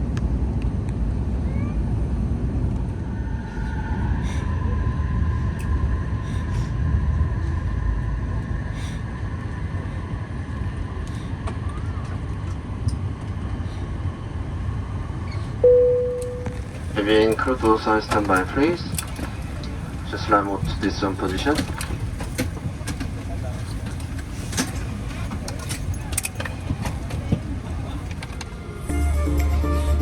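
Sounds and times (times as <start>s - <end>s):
aircraft cabin rumble: 0.0s - 29.0s
high two-note whine: 15.6s - 16.8s.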